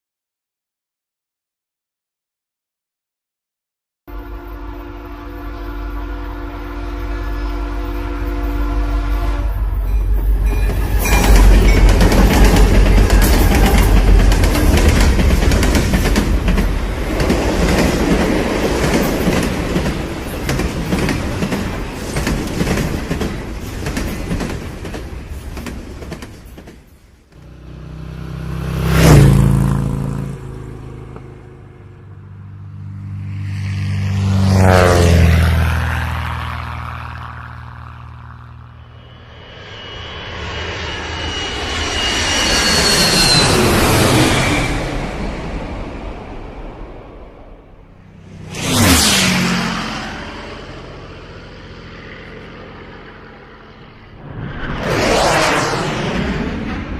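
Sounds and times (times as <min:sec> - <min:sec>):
train rumbling on rails: 0:04.1 - 0:56.9
vehicles passing by: 0:27.3 - 0:39.5, 0:43.4 - 0:56.9
high whine: 0:30.0 - 0:56.9.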